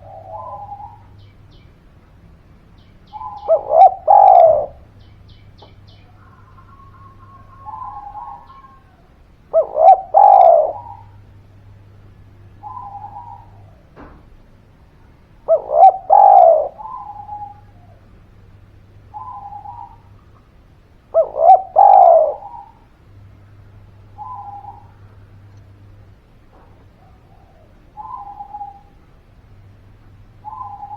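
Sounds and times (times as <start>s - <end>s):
dove cooing: 0.0s - 1.3s, 3.1s - 14.2s, 15.0s - 18.2s, 18.8s - 22.9s, 23.9s - 25.5s, 26.6s - 29.2s, 30.2s - 30.9s.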